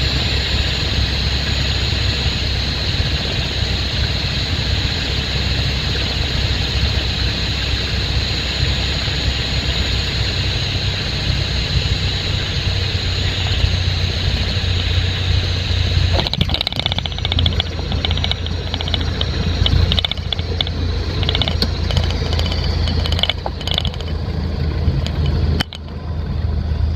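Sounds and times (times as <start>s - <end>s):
aircraft engine and propeller: 0.0s - 26.9s
wheels knocking and rattling: 13.2s - 26.9s.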